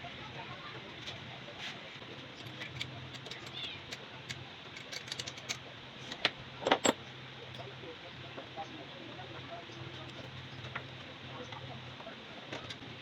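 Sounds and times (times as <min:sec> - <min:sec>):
background hiss and hum: 0:00.0 - 0:13.0
small parts and tools clicking: 0:02.2 - 0:07.0.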